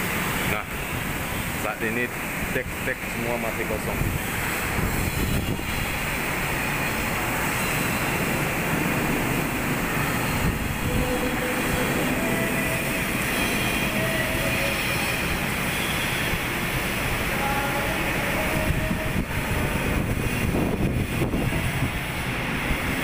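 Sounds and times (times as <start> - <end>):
shipyard machinery rumbling: 0.0 - 23.0.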